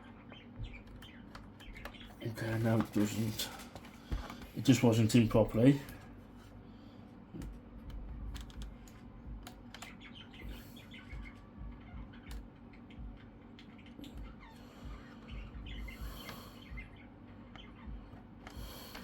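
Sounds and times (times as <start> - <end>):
plastic laptop parts clicking: 7.4 - 10.0.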